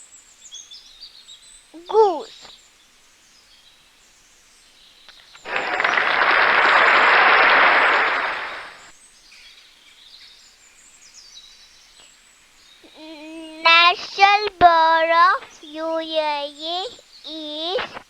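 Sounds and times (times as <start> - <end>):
faint bird chirping: 7.8 - 18.0.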